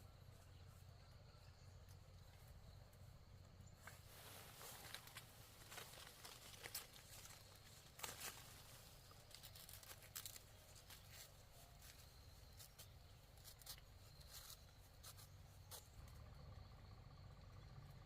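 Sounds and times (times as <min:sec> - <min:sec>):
low steady hum: 0:00.0 - 0:18.0
rustling and crackling clicks: 0:03.8 - 0:16.2.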